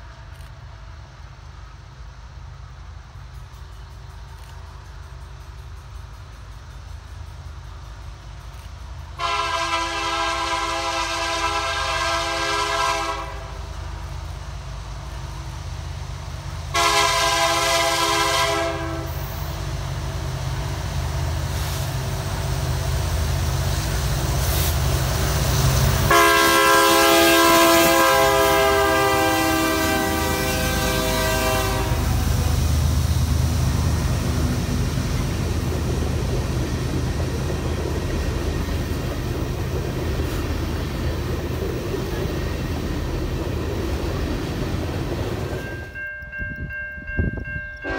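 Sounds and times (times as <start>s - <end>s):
train rumbling: 0.0s - 47.9s
locomotive air horn blasts: 9.2s - 13.6s, 16.7s - 19.3s, 26.1s - 32.6s.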